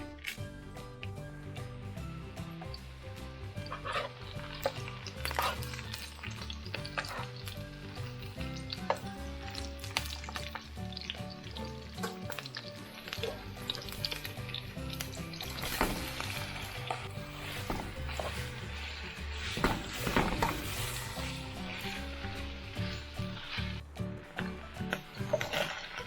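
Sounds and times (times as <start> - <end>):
chewing and slurping spaghetti: 3.6 - 17.6, 24.8 - 26.0.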